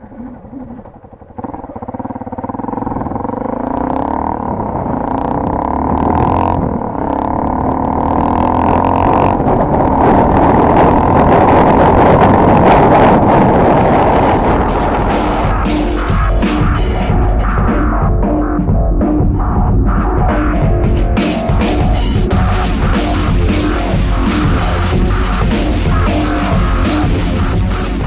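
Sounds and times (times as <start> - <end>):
motorcycle engine throaty exhaust: 0.0 - 28.0.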